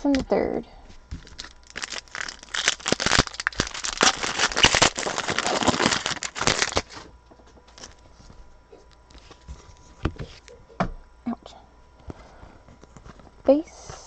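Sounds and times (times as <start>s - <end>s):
wrapper crinkling: 1.1s - 7.0s
faint handling sounds: 5.1s - 10.8s, 11.8s - 14.0s.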